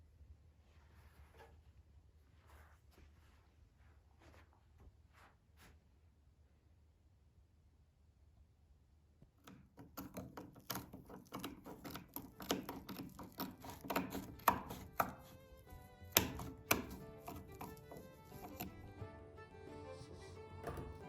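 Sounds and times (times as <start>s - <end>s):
sharp knocks and taps: 9.4s - 18.8s
music: 14.0s - 21.0s.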